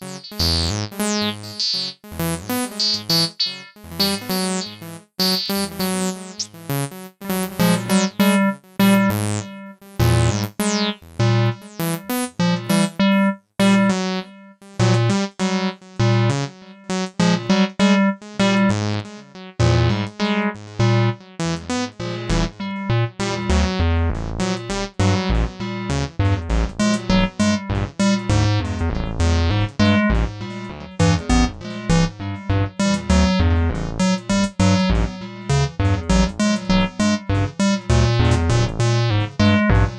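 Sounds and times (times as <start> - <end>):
acid synth bass line: 0.0 - 6.6, 7.2 - 11.8, 21.7 - 39.9.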